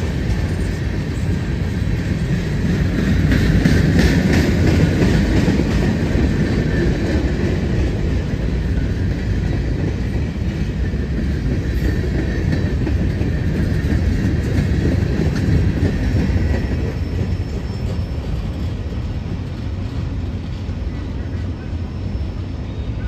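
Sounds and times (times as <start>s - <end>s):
steel wheels rumbling on rail: 0.0s - 23.0s
high wheel squeal: 16.2s - 18.9s, 20.9s - 23.0s.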